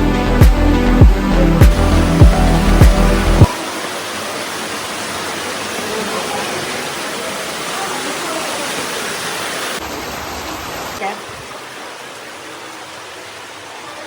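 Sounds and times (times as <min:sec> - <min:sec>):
background music: 0:00.0 - 0:03.5
waterfall rushing: 0:00.9 - 0:14.0.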